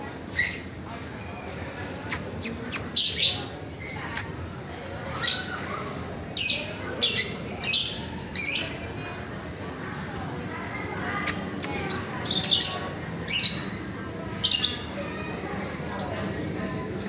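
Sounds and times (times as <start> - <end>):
bird high-pitched squawks: 2.1 - 4.4, 11.2 - 13.8.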